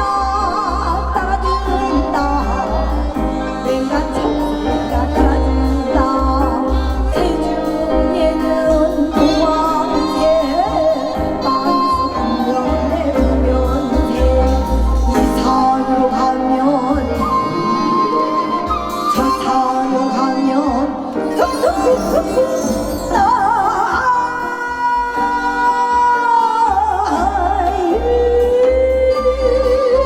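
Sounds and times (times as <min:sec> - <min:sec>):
traditional folk music: 0:00.0 - 0:30.0.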